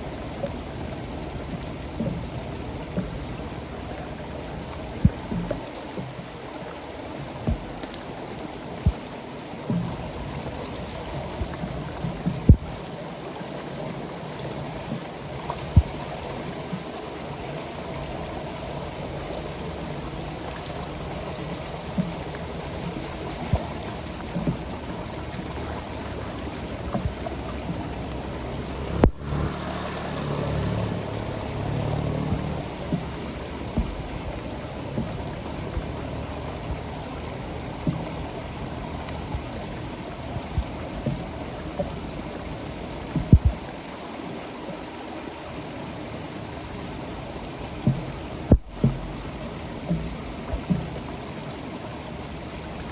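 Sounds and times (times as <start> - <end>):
floodwater running into storm drain: 0.0 - 52.9.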